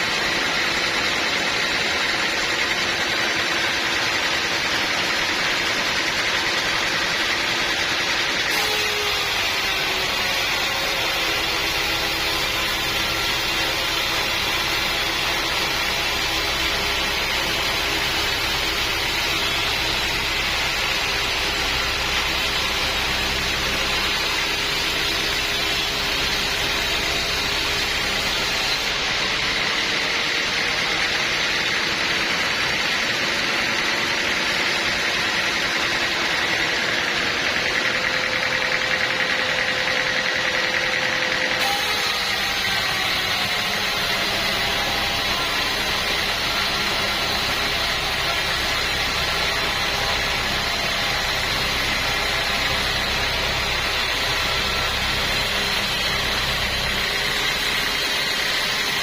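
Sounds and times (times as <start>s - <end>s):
sawmill machine drone: 0.0s - 59.0s
saw cutting hiss: 8.5s - 31.4s, 41.6s - 59.0s.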